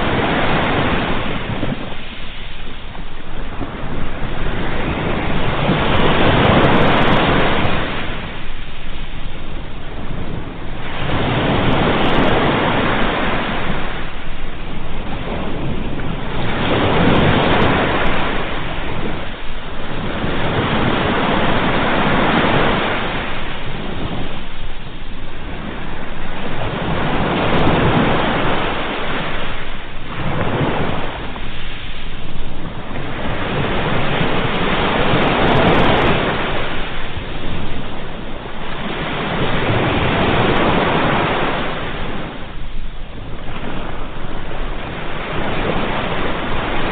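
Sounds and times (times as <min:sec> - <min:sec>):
ocean waves breaking on shore: 0:00.0 - 0:46.9.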